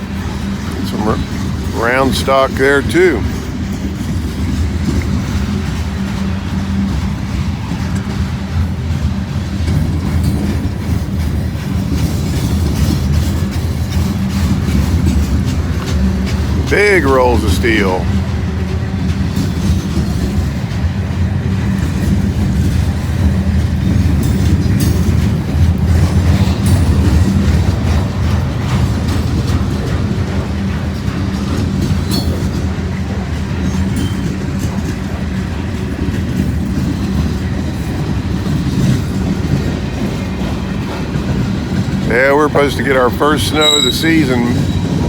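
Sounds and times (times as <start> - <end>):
freight train cars rolling: 0.0 - 45.0.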